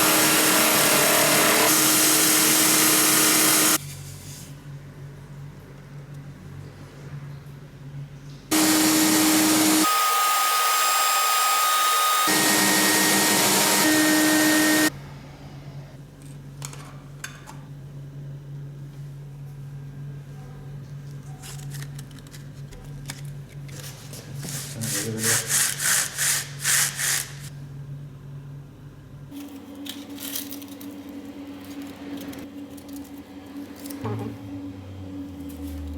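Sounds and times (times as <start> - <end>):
electric sander running: 0.0 - 3.8, 8.5 - 14.9
sandpaper rubbing on wood: 24.4 - 27.5.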